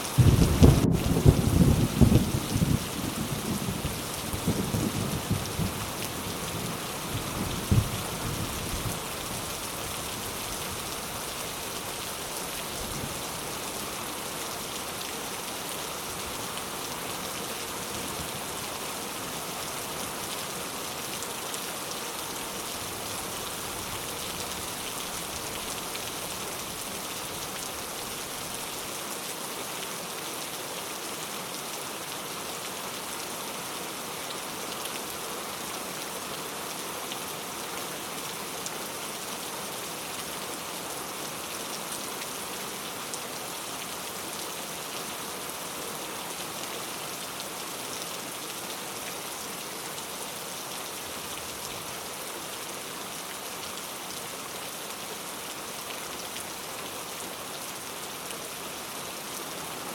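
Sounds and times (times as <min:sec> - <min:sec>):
steady rain: 0:00.0 - 0:59.9
low thunder rumble: 0:00.2 - 0:05.8.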